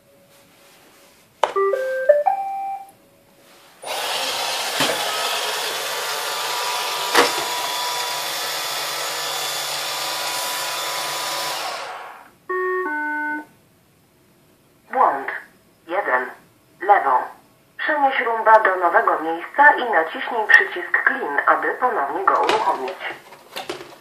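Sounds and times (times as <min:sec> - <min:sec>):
two-tone error chime: 0:01.5 - 0:02.9, 0:12.5 - 0:13.5
robot vacuum beep tune: 0:01.6 - 0:02.9, 0:12.5 - 0:13.5
vacuum motors hissing: 0:03.8 - 0:12.3.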